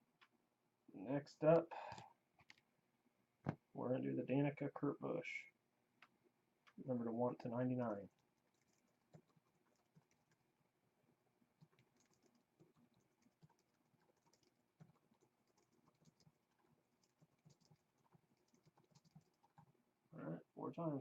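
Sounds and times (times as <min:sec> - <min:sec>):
typing on a keyboard: 0:08.1 - 0:10.4, 0:11.6 - 0:19.8.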